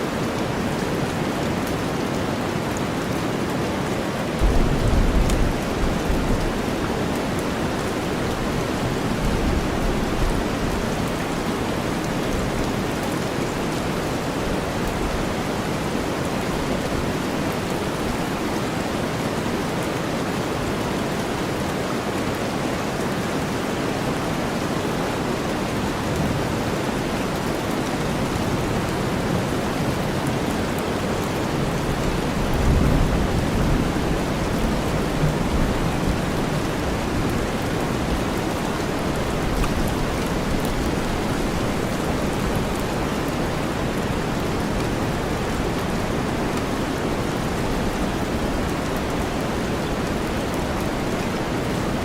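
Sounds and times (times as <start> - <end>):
steady rain: 0.0 - 52.0
low thunder rumble: 4.4 - 6.8.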